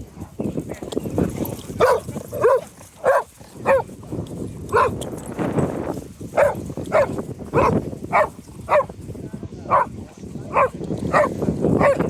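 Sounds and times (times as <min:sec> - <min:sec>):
dog barking: 0:01.8 - 0:03.9, 0:04.7 - 0:05.0, 0:06.4 - 0:08.9, 0:09.7 - 0:09.9, 0:10.5 - 0:12.0.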